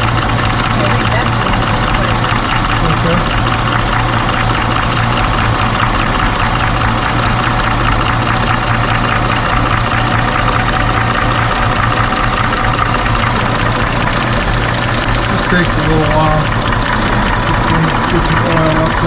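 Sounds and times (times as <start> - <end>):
fast valve ticking: 0.0 - 19.0
truck engine idling: 0.0 - 19.0.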